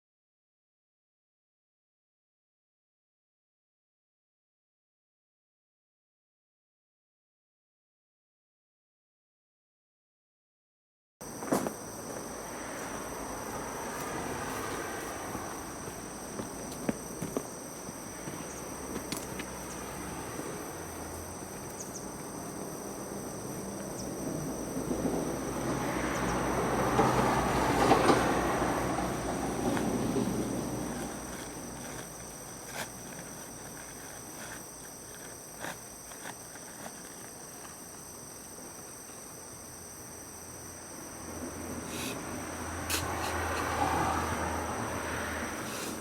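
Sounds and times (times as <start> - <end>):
insects trilling: 11.2 - 46.0
vehicle passing by: 12.2 - 17.2, 18.0 - 33.9, 41.0 - 46.0.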